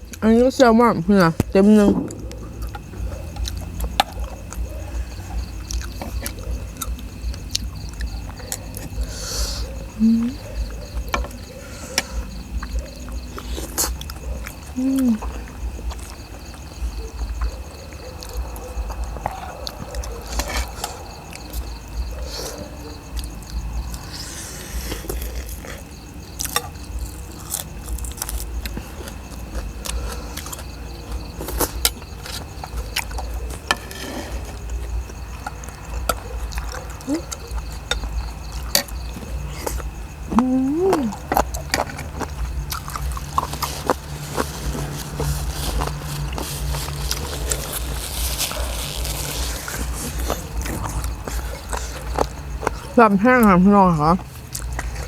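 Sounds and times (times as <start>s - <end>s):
steady low rumble: 0.0s - 9.1s
faint insect trill: 0.0s - 55.0s
chewing crunches: 1.8s - 53.5s, 54.2s - 55.0s.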